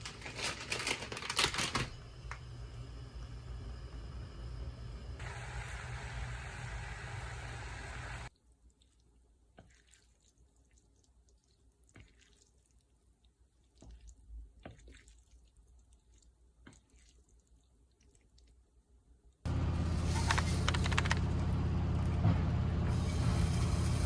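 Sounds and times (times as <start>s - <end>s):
water running from a tap: 22.9s - 24.0s.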